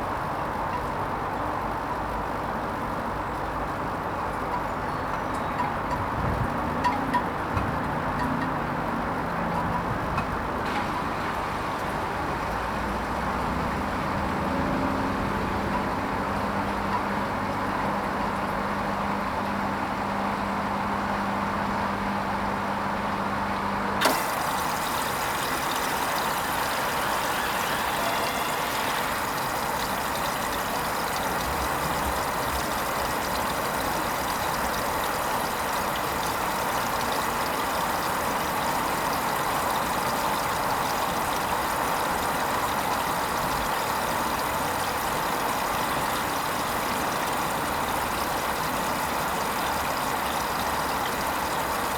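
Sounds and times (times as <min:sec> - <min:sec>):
washing machine humming: 0:00.0 - 0:51.9
running water hissing: 0:24.0 - 0:51.9.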